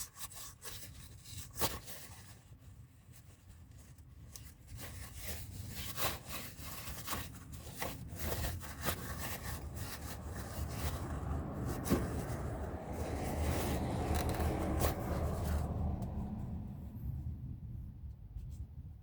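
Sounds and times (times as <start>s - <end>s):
scraping and rubbing strokes: 0.0s - 16.6s
low steady rumble: 0.9s - 19.0s.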